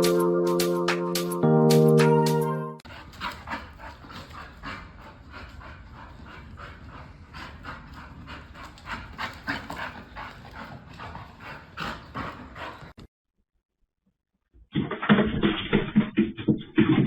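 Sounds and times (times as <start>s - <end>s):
dog panting rapidly: 2.8s - 13.0s.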